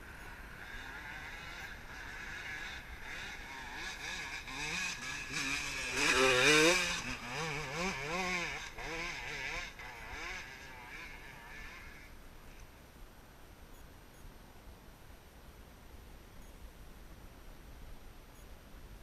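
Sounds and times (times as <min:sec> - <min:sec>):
dirt bike engine revving: 0:00.0 - 0:12.1.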